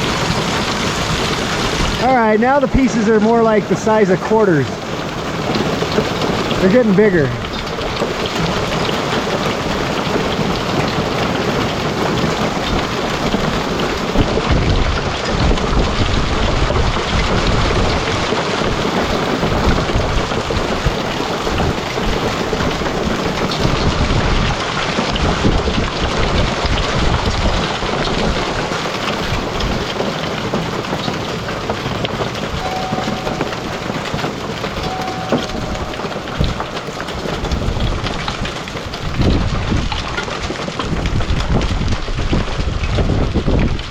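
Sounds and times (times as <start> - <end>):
hail and heavy rain pelting: 0.0 - 43.9
thunder rumbling: 4.7 - 24.6, 25.2 - 40.2.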